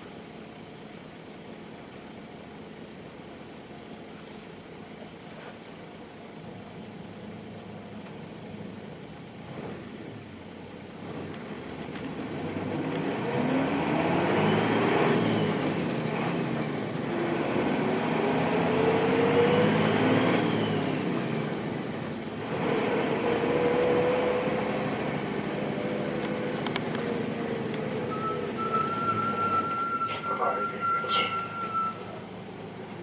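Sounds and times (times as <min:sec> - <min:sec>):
bus diesel engine accelerating: 0:00.0 - 0:33.0
steady high tone: 0:28.0 - 0:32.4.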